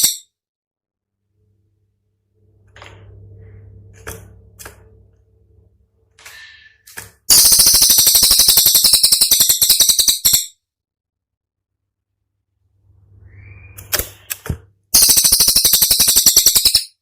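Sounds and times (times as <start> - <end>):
low hum: 1.0 - 6.9
songbird rattling trill: 7.3 - 10.6, 15.0 - 17.0
faint bird chirps: 12.9 - 14.3.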